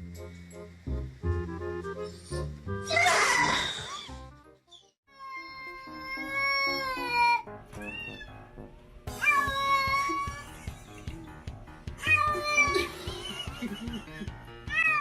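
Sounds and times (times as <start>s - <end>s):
cat meowing: 5.1s - 8.3s, 12.0s - 12.8s
background music with beat: 9.1s - 14.9s.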